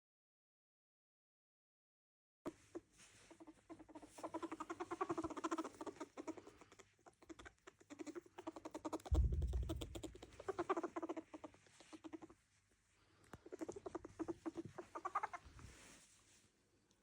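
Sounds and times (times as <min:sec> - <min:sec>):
small animal chattering calls: 0:03.3 - 0:12.4, 0:13.4 - 0:15.5
low thump: 0:09.1 - 0:10.4.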